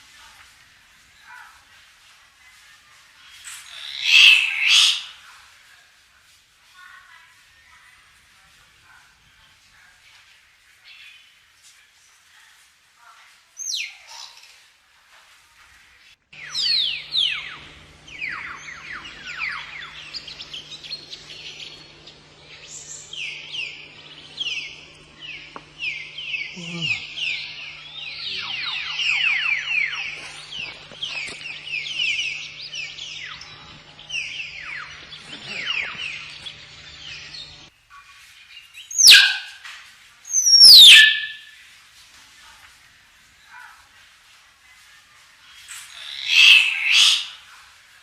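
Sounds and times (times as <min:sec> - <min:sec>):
myna bird whistling calls: 0:03.4 - 0:05.1, 0:38.8 - 0:39.5, 0:40.3 - 0:41.6, 0:45.9 - 0:47.4
steady low hum: 0:14.9 - 0:38.4
myna calling: 0:16.4 - 0:37.7, 0:38.9 - 0:39.6, 0:40.4 - 0:41.5.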